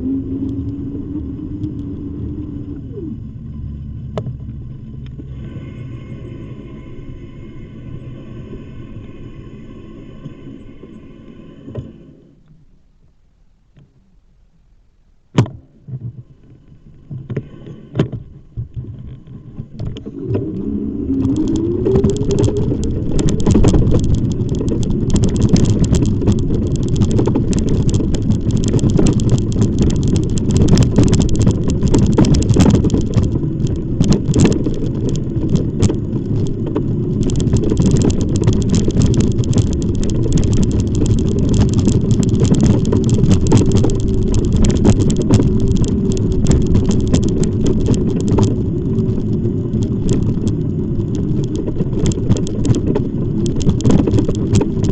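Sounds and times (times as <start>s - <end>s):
wind on microphone: 0.0s - 12.1s, 17.1s - 54.9s
tyres rumbling: 0.0s - 12.4s, 17.0s - 54.9s
rattling clicks: 19.0s - 54.9s.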